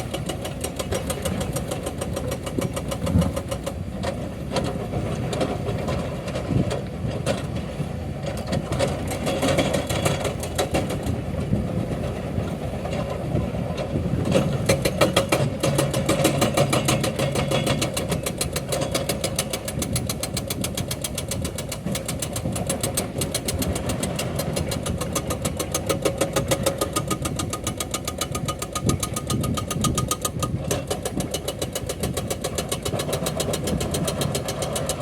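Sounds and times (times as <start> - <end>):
diesel engine running: 0.0 - 35.0
hydraulic breaker hammering rock: 14.1 - 35.0.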